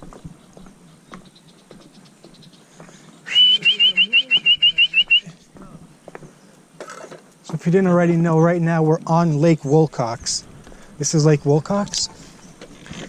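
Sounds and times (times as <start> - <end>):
bird chirping: 0.0 - 6.6, 9.3 - 12.8.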